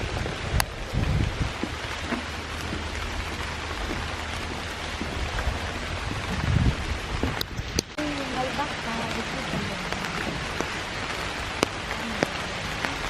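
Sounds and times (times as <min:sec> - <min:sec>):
dull low thumps: 0:00.0 - 0:13.0
steady rain falling: 0:00.0 - 0:13.0.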